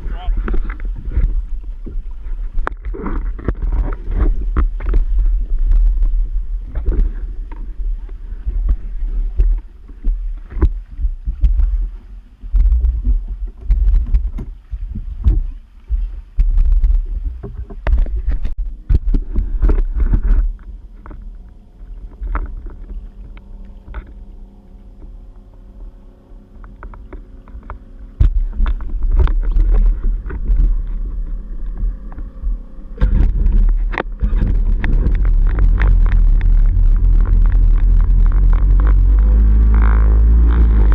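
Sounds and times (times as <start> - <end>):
personal watercraft engine: 0.0 - 40.9
wind buffeting microphone: 0.0 - 40.9
water knocks on microphone: 28.2 - 31.0.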